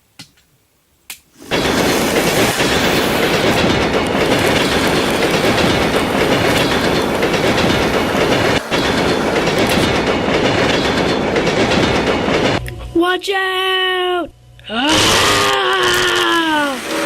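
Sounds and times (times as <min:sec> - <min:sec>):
model train wheels rattling: 0:01.4 - 0:12.6, 0:15.9 - 0:17.0.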